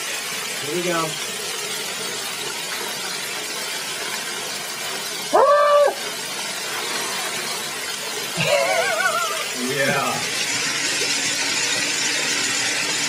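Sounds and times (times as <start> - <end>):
small waterfall rushing: 0.0 - 13.0
man's short cry: 5.3 - 6.0.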